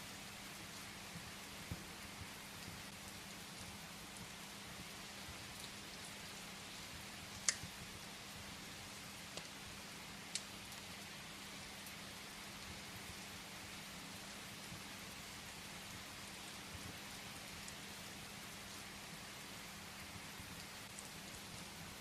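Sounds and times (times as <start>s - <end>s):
steady rain hiss: 0.0s - 22.0s
firewood crackling: 2.6s - 7.9s, 9.1s - 11.1s.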